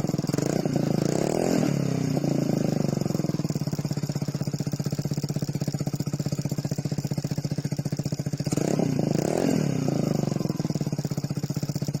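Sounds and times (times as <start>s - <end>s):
engine revving: 0.0s - 4.4s, 8.4s - 12.0s
scooter engine idling: 0.0s - 12.0s.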